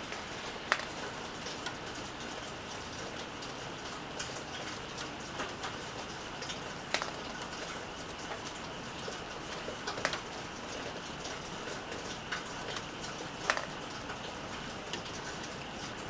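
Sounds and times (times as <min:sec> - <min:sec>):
steady rain: 0:00.0 - 0:16.0
drops tapping on hard surface: 0:00.1 - 0:01.0, 0:06.9 - 0:07.4, 0:09.9 - 0:10.3, 0:13.5 - 0:13.8.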